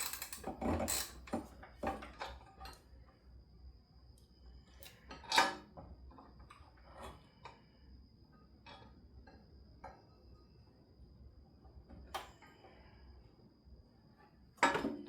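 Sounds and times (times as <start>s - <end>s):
hand tools clinking against metal: 0.0s - 1.2s.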